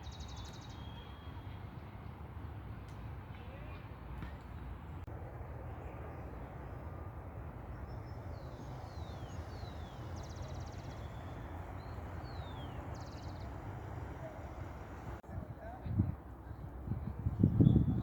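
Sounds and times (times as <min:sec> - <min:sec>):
small bird calling: 0:07.8 - 0:15.2.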